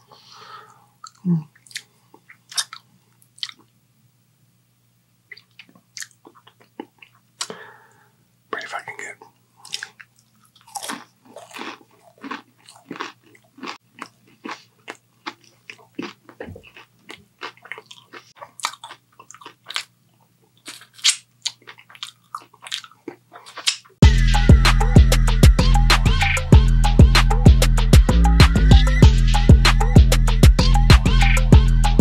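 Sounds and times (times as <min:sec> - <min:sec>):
chewing crispy fried food: 0:01.0 - 0:03.8, 0:05.3 - 0:07.6, 0:08.6 - 0:24.0.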